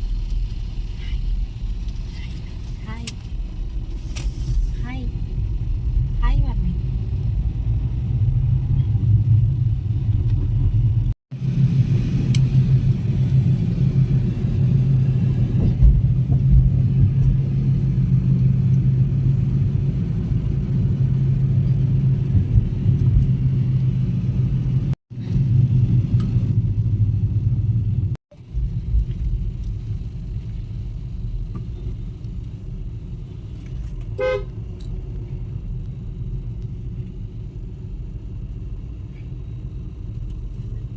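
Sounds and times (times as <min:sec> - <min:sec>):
car driving on road: 0:00.0 - 0:40.9
vehicle horn toot: 0:34.2 - 0:34.5.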